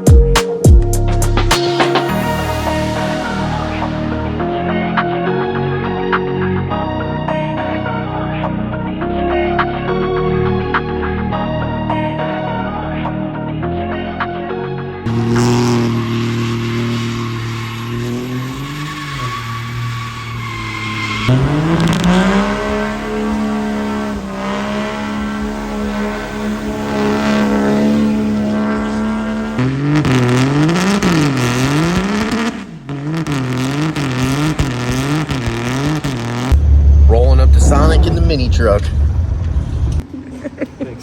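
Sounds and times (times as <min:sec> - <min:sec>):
vehicle engines revving: 0:15.1 - 0:41.0.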